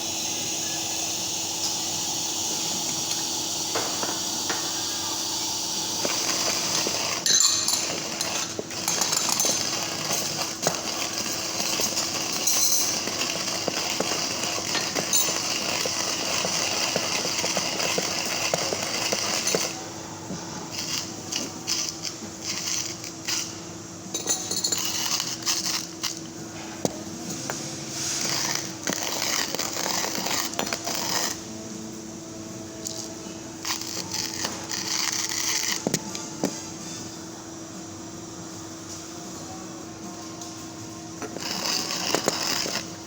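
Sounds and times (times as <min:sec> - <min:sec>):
hand grinder crushing coffee beans: 0:05.8 - 0:19.8, 0:20.7 - 0:23.6, 0:24.6 - 0:26.2, 0:28.0 - 0:31.4, 0:32.8 - 0:36.2, 0:41.2 - 0:43.0.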